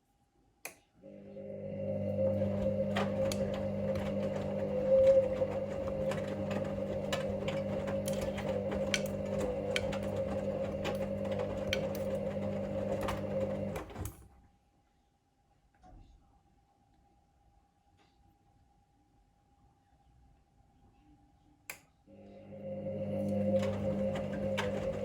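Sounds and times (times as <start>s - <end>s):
washing machine motor humming: 1.0s - 14.4s, 22.1s - 25.0s.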